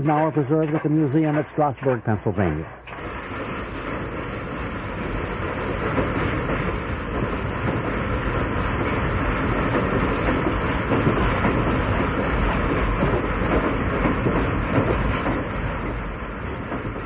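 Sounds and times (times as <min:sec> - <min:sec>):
steam train rumble and clatter: 0:00.0 - 0:17.0.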